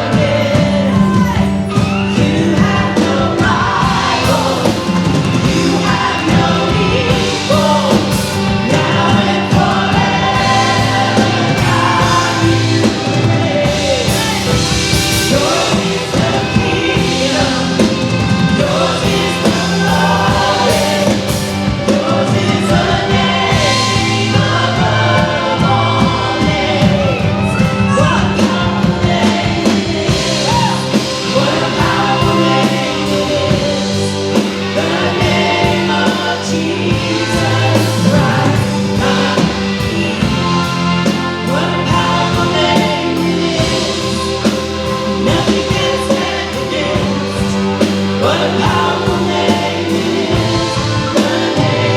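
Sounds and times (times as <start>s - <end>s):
worship band and singers performing: 0.0s - 51.9s.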